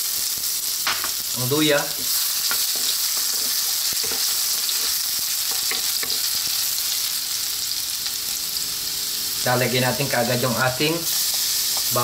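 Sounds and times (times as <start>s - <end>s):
ginger sizzling in hot oil: 0.0s - 12.0s
wooden spatula scraping a wok: 2.0s - 6.1s.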